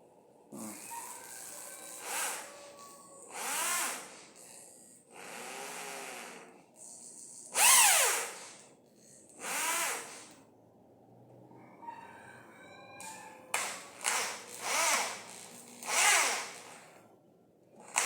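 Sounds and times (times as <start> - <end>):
electric drill motor whine: 0.6 - 8.6, 9.4 - 10.4, 13.6 - 16.9.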